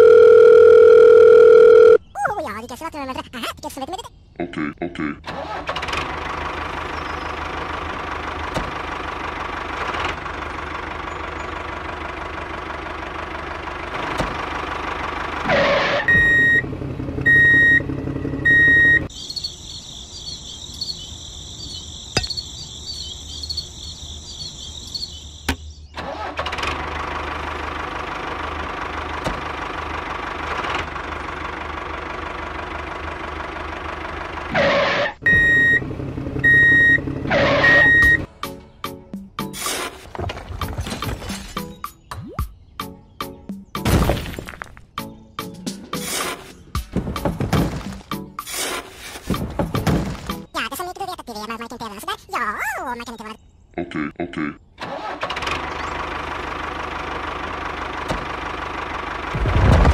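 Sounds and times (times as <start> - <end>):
model tractor engine sound: 5.3 - 19.1, 26.0 - 38.3, 54.8 - 59.9.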